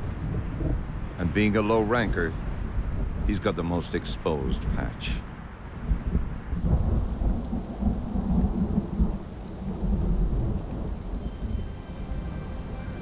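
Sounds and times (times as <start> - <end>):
steady rain: 6.6 - 13.0
thunder rumbling: 6.6 - 13.0.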